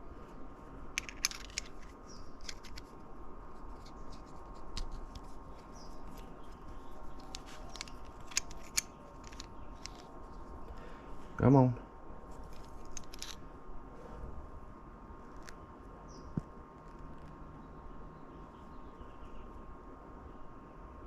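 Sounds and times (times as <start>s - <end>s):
small metal parts clicking: 1.0s - 2.9s, 3.8s - 10.1s, 12.4s - 13.4s.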